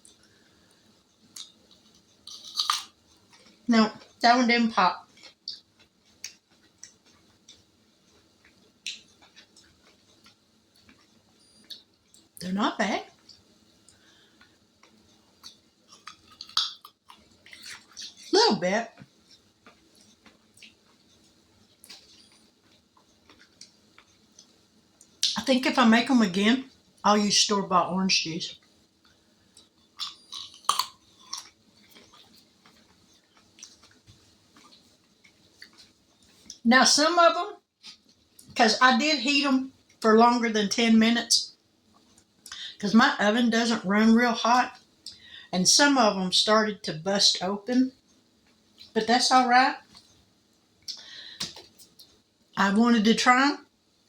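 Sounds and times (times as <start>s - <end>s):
chewing crunchy candies: 1.3s - 4.2s, 14.4s - 18.3s, 19.2s - 25.4s, 29.6s - 36.6s.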